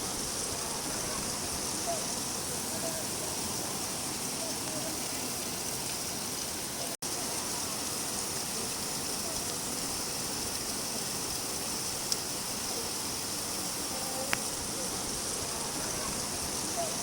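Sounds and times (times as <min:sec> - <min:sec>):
steady rain hissing: 0:00.0 - 0:17.0.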